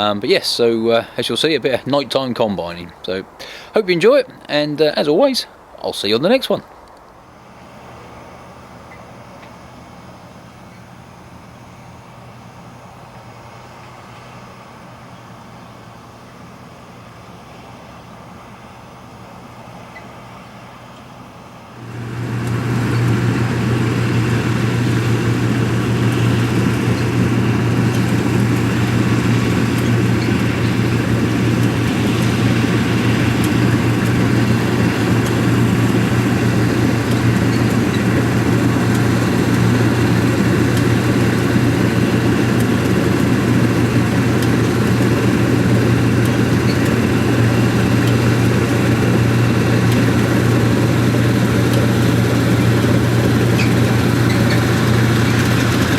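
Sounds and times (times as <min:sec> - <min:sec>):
diesel engine running: 0:00.0 - 0:03.7, 0:07.2 - 0:55.9.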